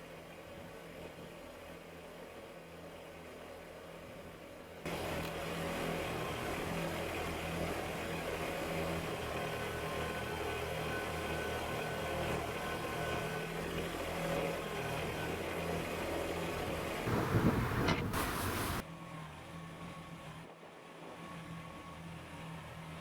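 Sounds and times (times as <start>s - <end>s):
tractor diesel engine running: 14.7s - 18.8s.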